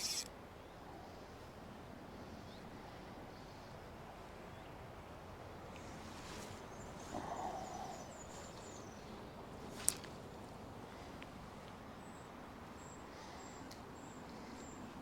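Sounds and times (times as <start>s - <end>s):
outdoor background noise: 0.0s - 15.0s
hooting animal call: 7.1s - 8.2s.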